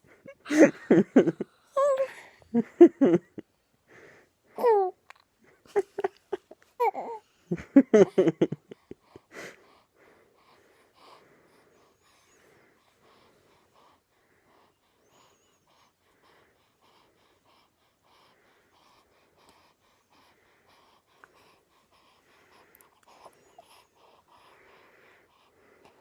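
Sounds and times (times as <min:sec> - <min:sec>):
baby breathing with wheeze: 0:08.9 - 0:26.0.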